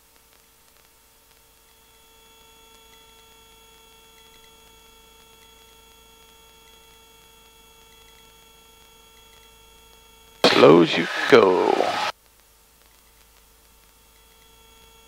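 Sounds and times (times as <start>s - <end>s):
faint steady hum: 10.4s - 12.1s
high whining tones: 10.4s - 12.1s.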